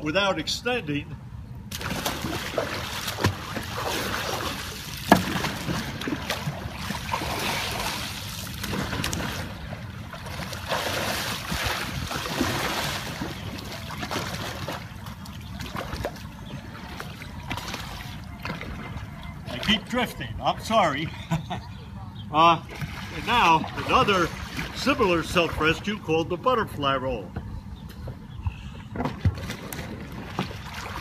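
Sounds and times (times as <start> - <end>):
water splashing around kayak: 1.7 - 20.1, 22.6 - 26.0, 28.9 - 31.0
sharp smack of water: 5.0 - 6.5.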